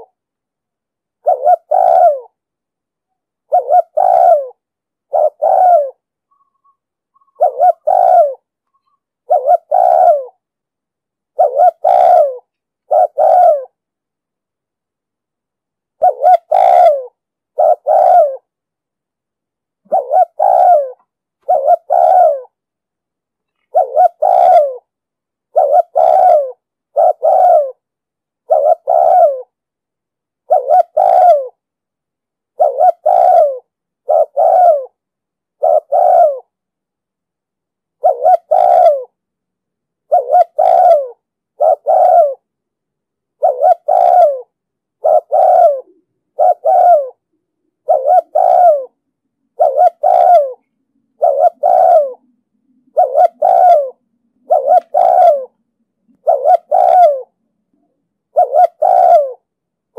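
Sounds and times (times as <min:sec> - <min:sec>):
dove cooing: 0:00.0 - 0:00.2, 0:01.2 - 0:02.4, 0:03.5 - 0:10.5, 0:11.3 - 0:13.8, 0:16.0 - 0:18.5, 0:19.8 - 0:22.6, 0:23.5 - 0:24.9, 0:25.5 - 0:27.8, 0:28.4 - 0:29.6, 0:30.4 - 0:31.6, 0:32.5 - 0:35.0, 0:35.6 - 0:36.5, 0:38.0 - 0:39.2, 0:40.0 - 0:42.5, 0:43.4 - 0:59.5.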